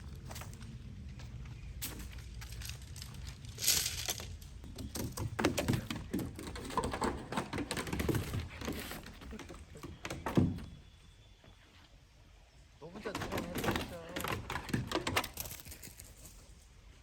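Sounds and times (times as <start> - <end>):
rustling: 1.8 - 5.2.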